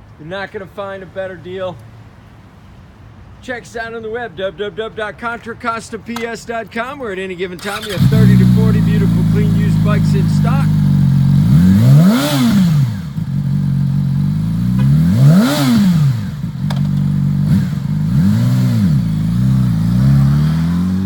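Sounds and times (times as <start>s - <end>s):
motorcycle engine idling: 7.6s - 20.4s
engine revving blips: 7.6s - 21.0s.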